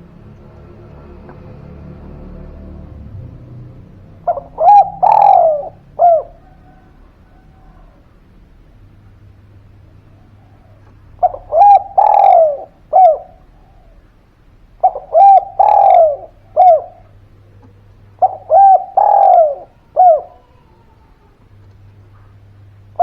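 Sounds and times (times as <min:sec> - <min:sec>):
dove cooing: 0:04.1 - 0:08.4, 0:09.9 - 0:14.2, 0:14.8 - 0:23.0.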